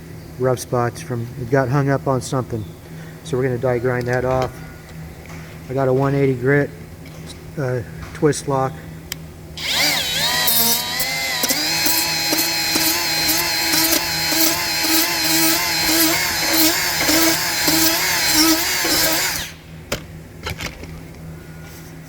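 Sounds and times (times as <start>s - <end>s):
die grinder whining: 9.6s - 19.6s
sanding disc grinding: 9.6s - 19.6s.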